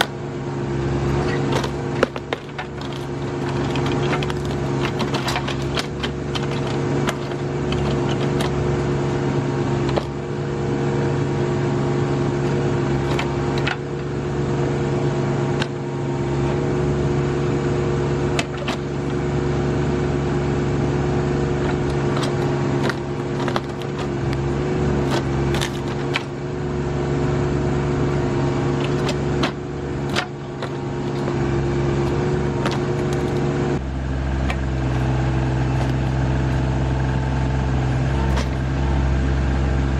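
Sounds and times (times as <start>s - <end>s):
backhoe bucket cracking roots: 0.0s - 10.4s, 12.3s - 14.3s, 15.4s - 16.8s, 18.2s - 19.4s, 21.3s - 26.8s, 27.7s - 39.1s
tractor diesel engine running: 0.0s - 39.9s.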